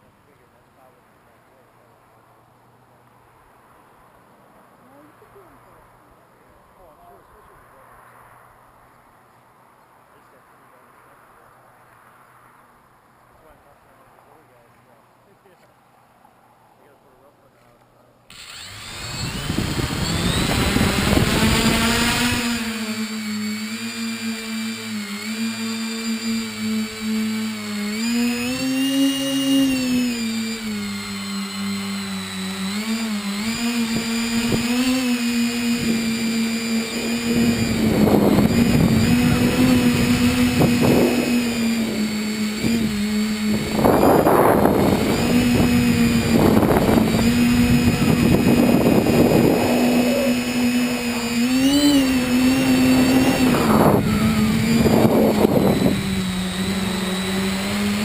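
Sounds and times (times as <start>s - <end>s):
drone motors and propellers buzzing: 18.3s - 58.0s
rushing air gusts: 37.3s - 57.1s.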